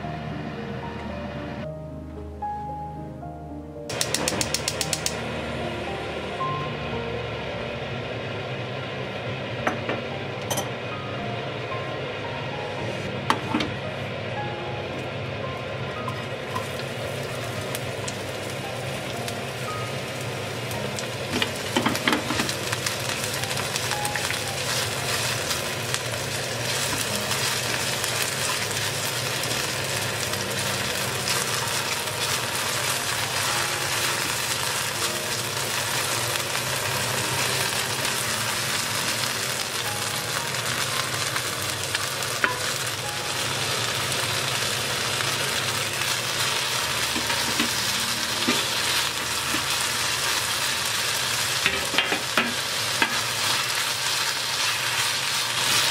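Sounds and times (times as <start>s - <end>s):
green onion sizzling in hot oil: 14.9s - 55.9s.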